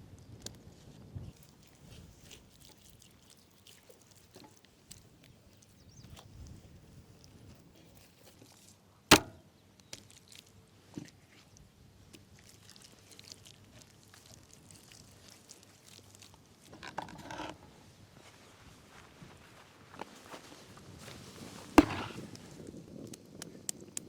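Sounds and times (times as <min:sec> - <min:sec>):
sharp knocks: 0:09.1 - 0:09.4, 0:21.8 - 0:22.2
rustling: 0:20.1 - 0:22.4.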